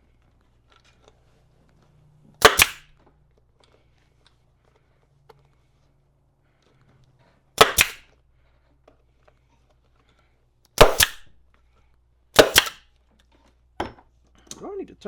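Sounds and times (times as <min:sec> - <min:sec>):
pneumatic staple gun firing: 0:02.4 - 0:02.9, 0:07.6 - 0:08.0, 0:10.7 - 0:11.3, 0:12.4 - 0:12.8.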